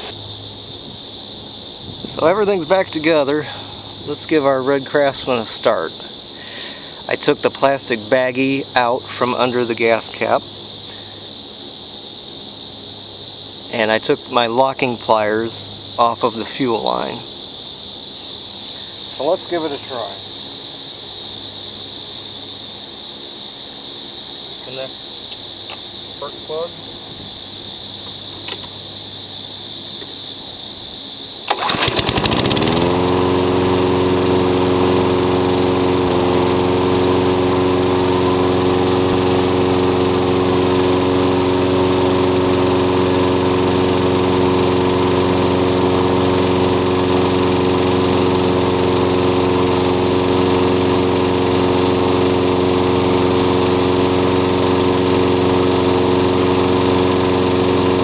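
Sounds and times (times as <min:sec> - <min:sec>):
lawn mower engine running: 0:00.0 - 0:23.0, 0:25.4 - 0:30.5, 0:31.5 - 0:58.0.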